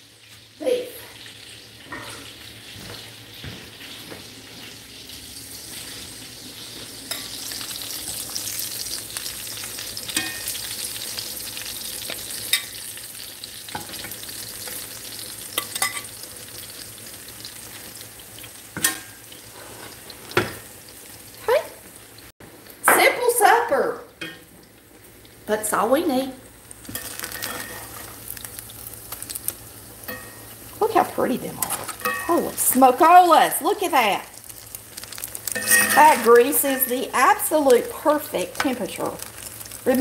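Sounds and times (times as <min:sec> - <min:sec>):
meat sizzling in hot grease: 0:00.0 - 0:40.0
metal spatula scraping pan: 0:26.9 - 0:28.2, 0:31.6 - 0:32.5, 0:35.5 - 0:37.2.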